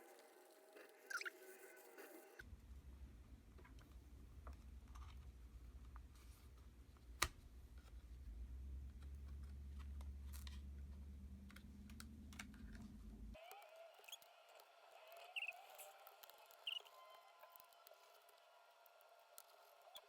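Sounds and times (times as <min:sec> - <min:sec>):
low steady hum: 0:02.4 - 0:13.4.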